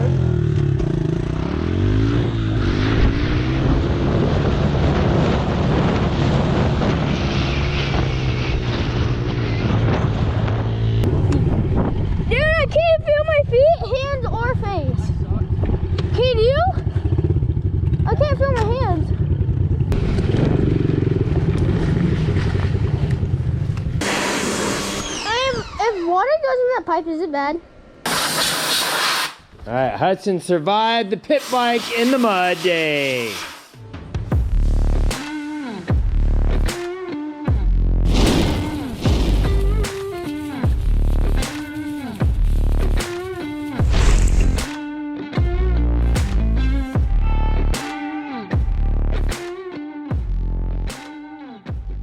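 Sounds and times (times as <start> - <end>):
pit bike engine running: 0.0 - 25.6, 37.5 - 44.7
small motorcycle engine running: 14.0 - 26.2.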